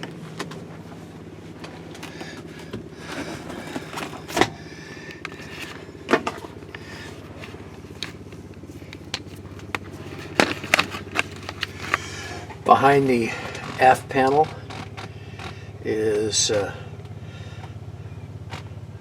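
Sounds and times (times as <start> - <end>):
low mechanical hum: 0.0 - 19.0
knocks and clatter from handling: 5.2 - 12.6.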